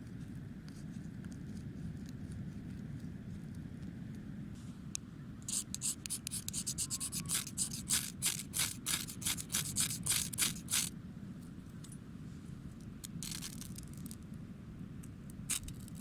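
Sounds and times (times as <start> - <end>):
rhythmic scraping strokes: 5.5 - 10.9.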